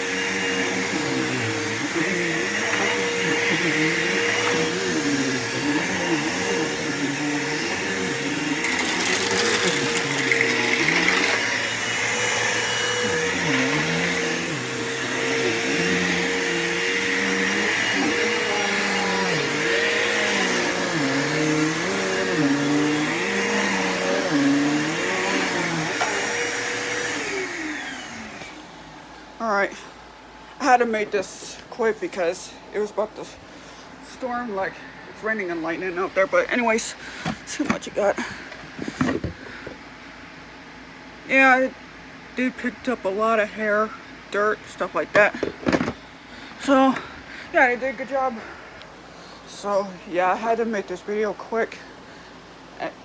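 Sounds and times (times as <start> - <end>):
vacuum cleaner winding down: 0.0 - 28.9
vacuum cleaner running over carpet: 0.0 - 29.0.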